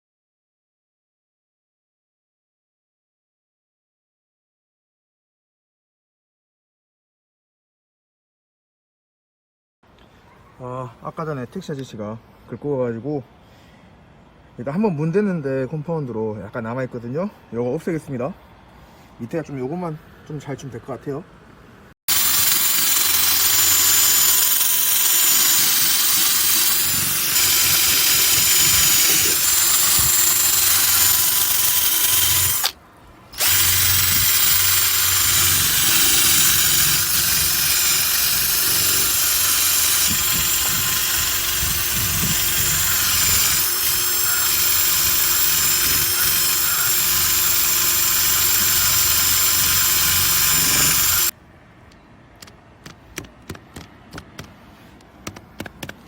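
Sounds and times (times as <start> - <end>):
electric polisher running: 22.1 - 32.7, 33.4 - 51.3.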